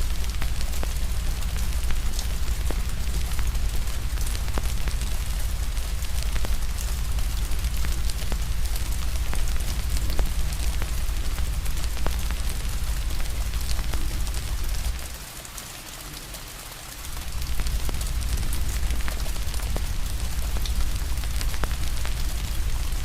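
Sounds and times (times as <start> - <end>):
wood fire crackling: 0.0 - 15.2, 17.0 - 23.0
rain hiss: 0.0 - 23.0
low rumble: 17.1 - 23.0.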